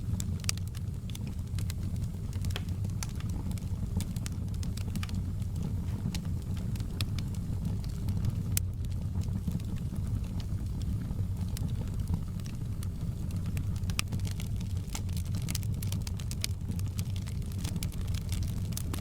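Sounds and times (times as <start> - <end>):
low rumble of flames: 0.0 - 19.0
wood fire pops and snaps: 0.0 - 19.0.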